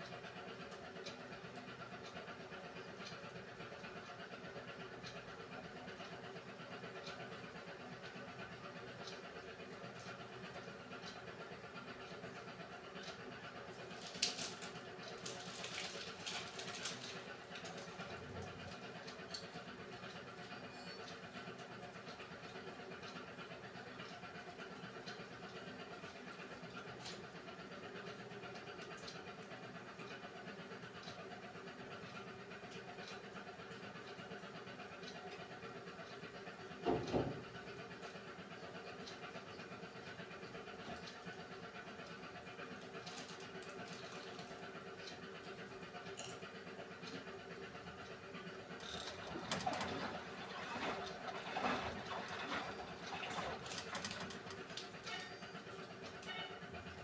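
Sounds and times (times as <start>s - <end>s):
washing machine humming: 9.3s - 20.7s, 36.1s - 57.0s
water swishing in washing machine: 48.1s - 56.2s.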